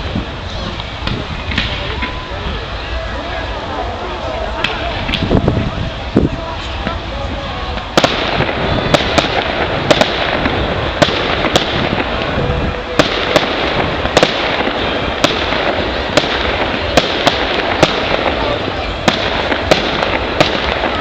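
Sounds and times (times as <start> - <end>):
fireworks crackle and hiss: 0.0 - 21.0
firework shells bursting: 7.8 - 21.0.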